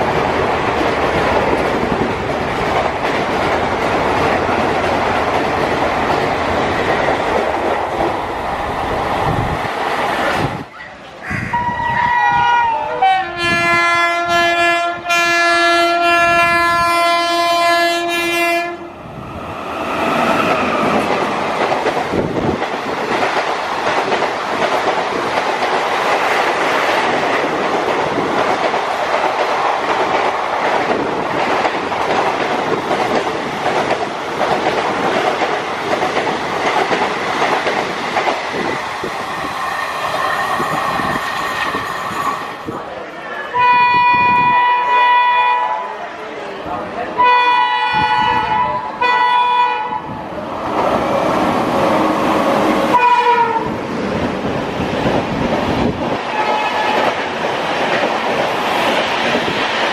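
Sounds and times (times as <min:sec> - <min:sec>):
locomotive horn blasts: 0:11.3 - 0:18.9, 0:43.6 - 0:45.8, 0:47.2 - 0:50.1, 0:52.9 - 0:53.7
train wheels rattling over rail joints: 0:19.9 - 0:42.9.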